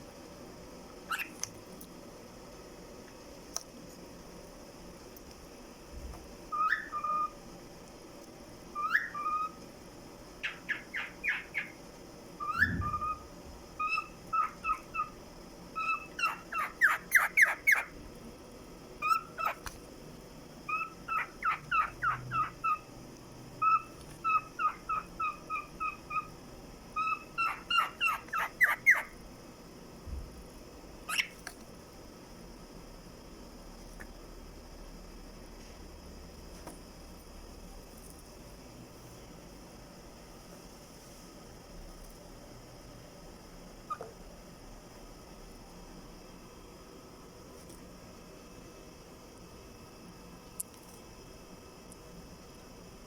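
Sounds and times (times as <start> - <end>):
cockatiel singing: 1.1 - 1.5, 6.5 - 7.4, 8.7 - 9.6, 10.4 - 11.8, 12.4 - 18.0, 19.0 - 19.7, 20.7 - 22.9, 23.6 - 29.2, 31.0 - 31.4, 43.8 - 44.1.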